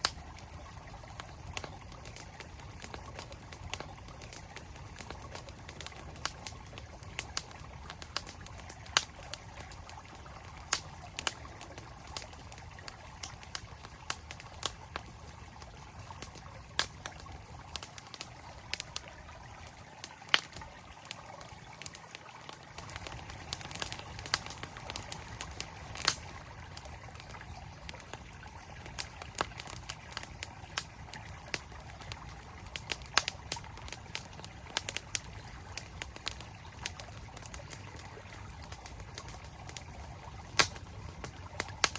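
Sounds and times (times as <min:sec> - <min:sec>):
campfire crackling and popping: 0:00.0 - 0:41.9
flowing stream: 0:00.0 - 0:41.9.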